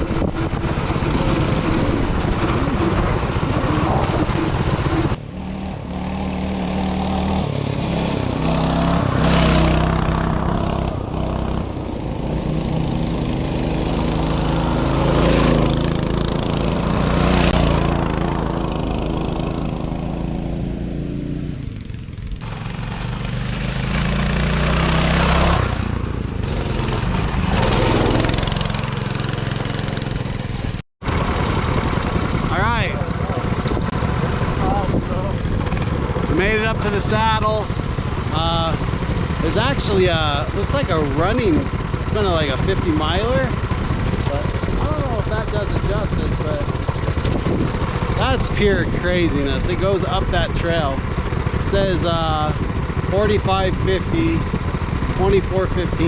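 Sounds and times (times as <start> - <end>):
mini bike engine running: 21.9 - 56.0.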